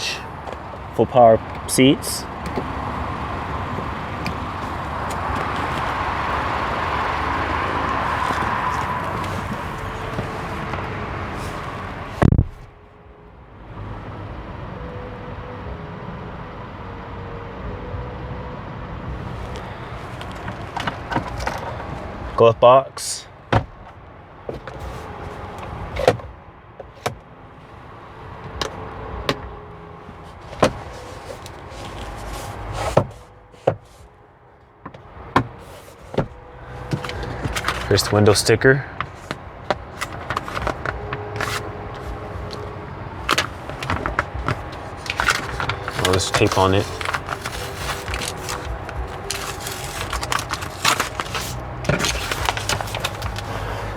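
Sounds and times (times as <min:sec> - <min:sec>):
outside traffic noise: 0:00.0 - 0:53.9
car door shutting: 0:28.4 - 0:34.1, 0:34.8 - 0:53.8.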